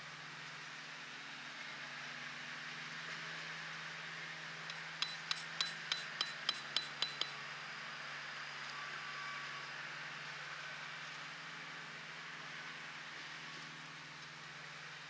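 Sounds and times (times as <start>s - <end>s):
quick ringing metallic strikes: 4.7s - 7.4s.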